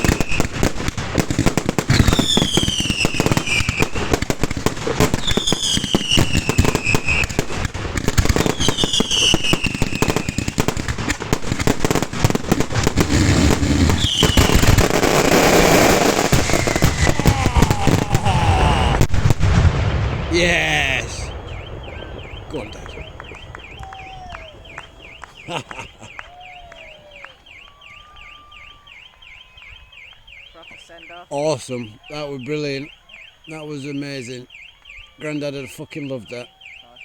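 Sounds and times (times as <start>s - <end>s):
fireworks bangs and crackling: 0.0s - 31.3s
car alarm wailing: 13.9s - 19.0s, 21.3s - 37.0s.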